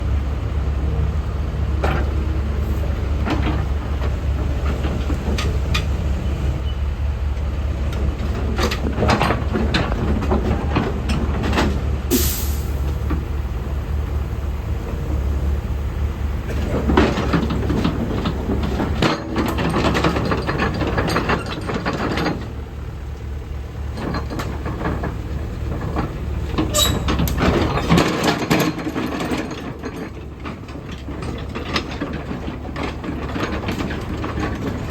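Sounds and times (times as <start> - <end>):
excavator diesel engine running: 0.0 - 34.9
metal clanks and knocks: 7.9 - 13.6, 15.9 - 34.9
short hiss: 12.1 - 12.9.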